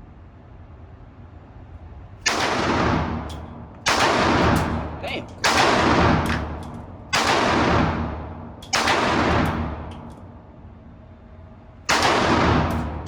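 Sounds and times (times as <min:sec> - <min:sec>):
gunshots with echo: 0:02.2 - 0:10.1, 0:11.9 - 0:13.0.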